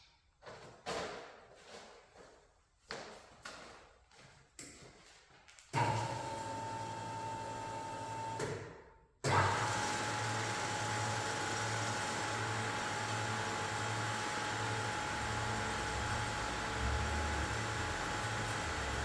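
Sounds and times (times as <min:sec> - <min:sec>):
bandsaw running: 0:09.3 - 0:19.0.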